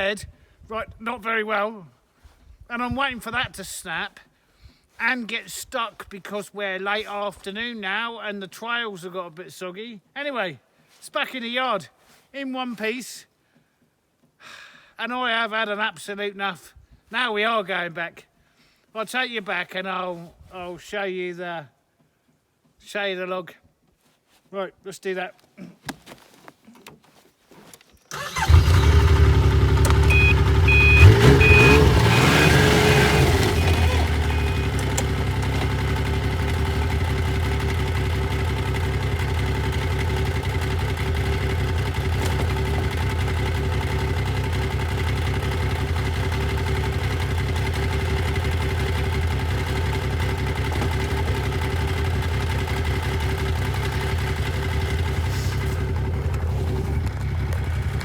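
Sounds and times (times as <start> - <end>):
snowmobile engine: 28.1 - 58.0
short beeps: 29.9 - 34.9.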